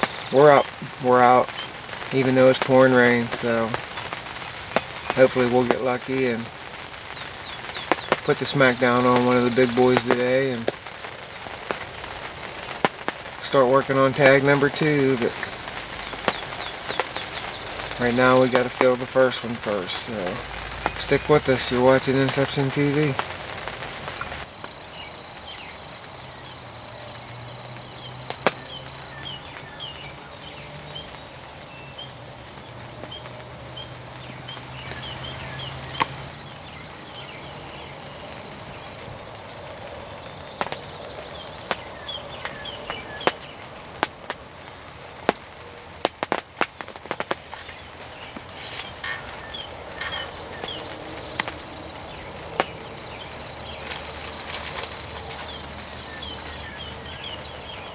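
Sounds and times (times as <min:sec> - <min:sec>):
heavy drops ticking: 0:00.0 - 0:57.9
steady rain falling: 0:00.0 - 0:57.9
faint bird chirps: 0:46.8 - 0:57.9.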